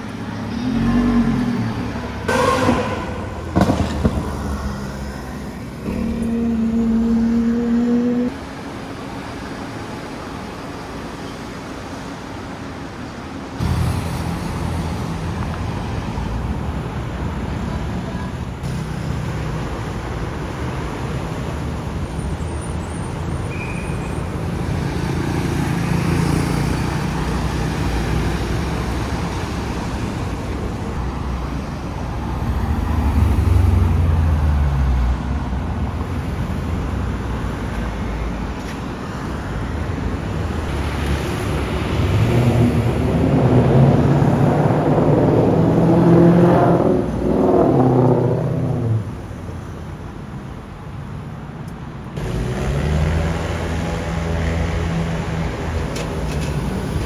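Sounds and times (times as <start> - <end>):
car engine accelerating hard: 0.0 - 8.6, 39.9 - 50.1, 52.2 - 57.0
car engines passing: 0.0 - 57.0
loud low swell: 0.6 - 8.3, 40.6 - 49.8.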